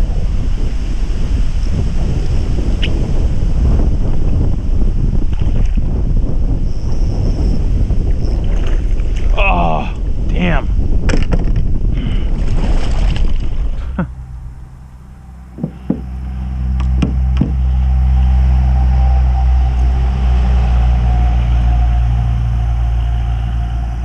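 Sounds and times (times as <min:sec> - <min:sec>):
wind and water rushing: 0:00.0 - 0:24.0
engine humming: 0:09.4 - 0:24.0.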